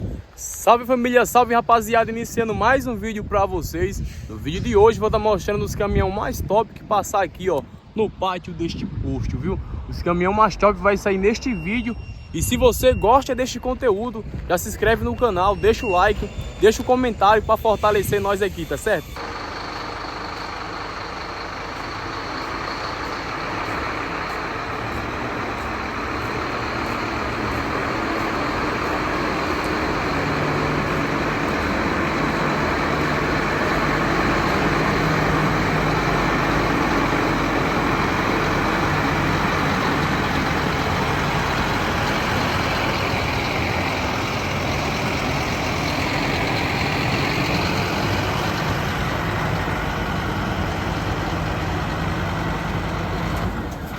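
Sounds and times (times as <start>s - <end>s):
truck engine running: 13.8s - 53.9s.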